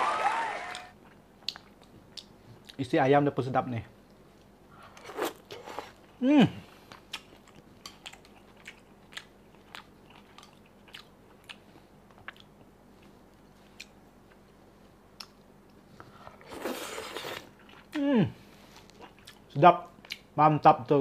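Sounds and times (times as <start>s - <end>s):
faint chewing clicks and smacks: 1.0s - 2.9s, 6.9s - 16.2s, 18.7s - 20.3s.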